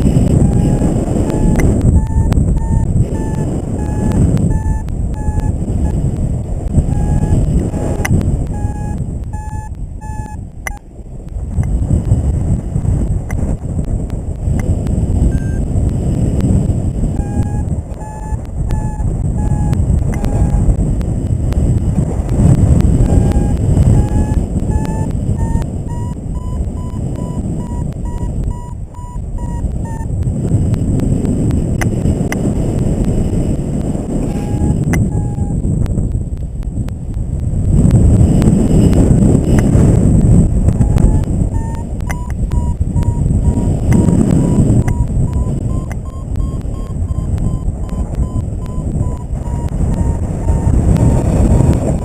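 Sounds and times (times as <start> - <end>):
variometer short beeps: 0.0 - 6.1, 6.7 - 10.8, 14.6 - 15.7, 17.1 - 20.8, 22.9 - 30.2, 34.1 - 35.6, 40.7 - 52.0
wind rushing across microphone: 0.0 - 52.0.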